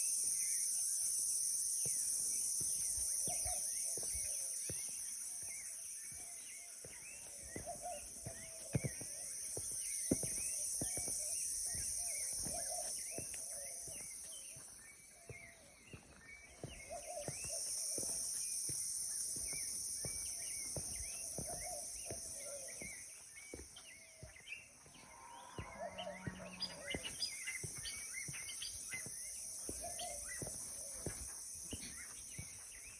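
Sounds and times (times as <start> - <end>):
birds chirping: 0.0 - 32.9.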